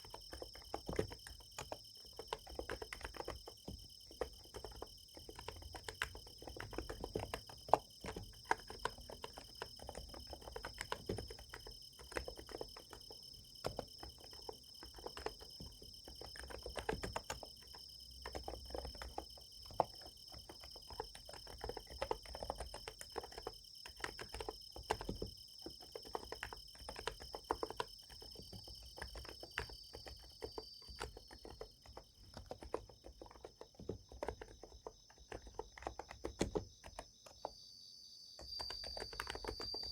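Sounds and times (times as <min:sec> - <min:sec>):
crickets chirring: 0:00.0 - 0:39.9
keyboard key clicks: 0:38.4 - 0:39.9.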